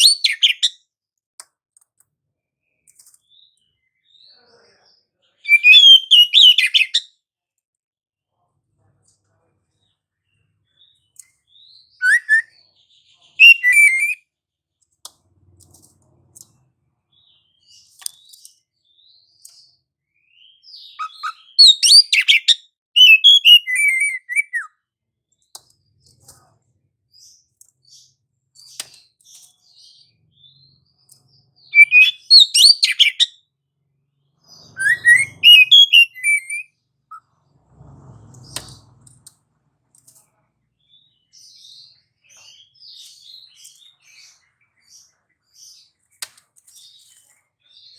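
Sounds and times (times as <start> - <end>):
bird song with sliding whistles: 0.0 - 0.8, 5.4 - 7.1, 11.9 - 12.6, 13.4 - 14.2, 20.3 - 24.8, 31.6 - 33.4, 34.5 - 39.0.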